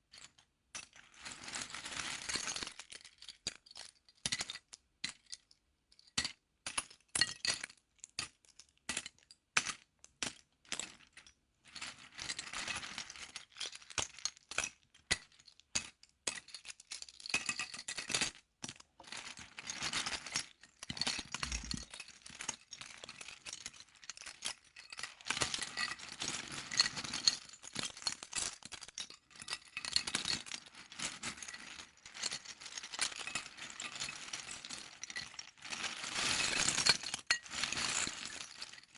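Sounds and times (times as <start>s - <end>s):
plastic bricks clicking and rattling: 21.4s - 22.0s.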